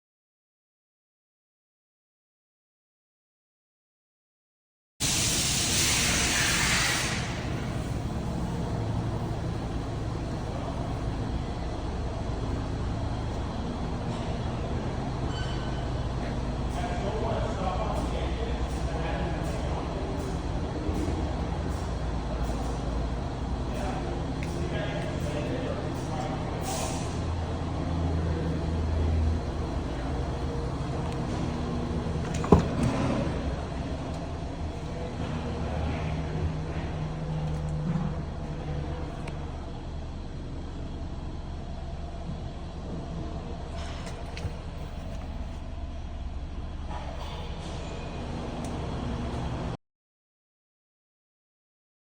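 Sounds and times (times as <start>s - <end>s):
vehicle engine hum: 7.2s - 49.8s
car engine humming: 27.4s - 34.2s.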